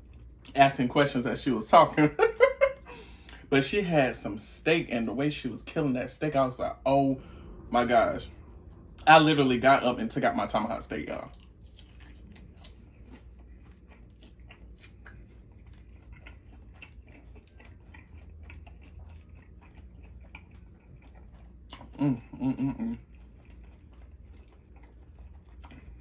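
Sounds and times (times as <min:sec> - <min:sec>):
chewing steak: 0:05.4 - 0:26.0.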